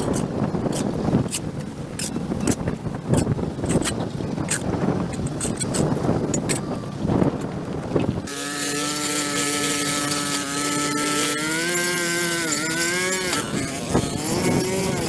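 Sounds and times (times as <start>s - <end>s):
small petrol engine running: 8.2s - 15.0s.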